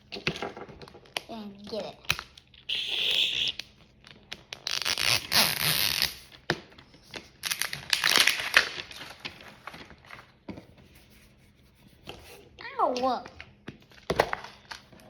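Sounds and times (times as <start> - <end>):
packaging crinkling and tearing: 3.4 - 10.4.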